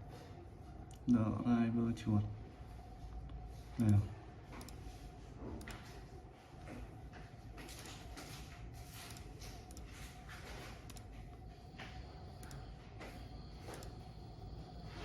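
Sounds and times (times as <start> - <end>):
faint steady hum: 0.0 - 15.0
computer mouse clicks: 3.8 - 4.8, 5.6 - 5.8, 9.0 - 10.0, 10.8 - 11.1, 12.4 - 12.7, 13.6 - 14.1.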